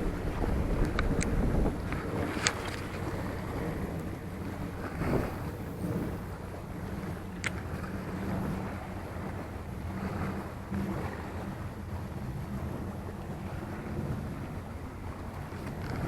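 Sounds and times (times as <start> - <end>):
sea: 0.0 - 16.0
wind buffeting microphone: 0.0 - 16.0.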